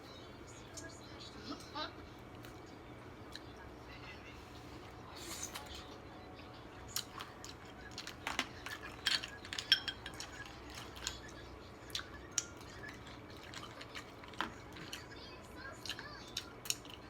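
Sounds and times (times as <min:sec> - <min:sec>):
shells and utensils cracking: 0:08.0 - 0:11.2.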